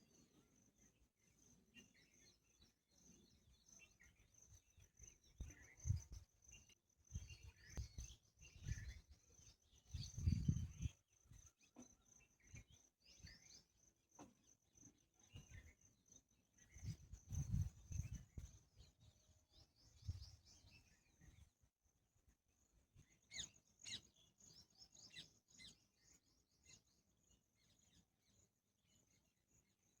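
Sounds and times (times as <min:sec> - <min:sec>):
bird chirps: 0:00.0 - 0:21.6, 0:23.0 - 0:29.3.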